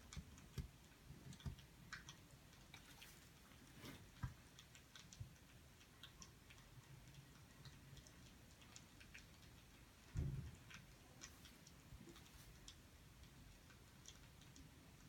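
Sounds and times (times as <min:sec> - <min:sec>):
low thump: 0:10.2 - 0:10.6.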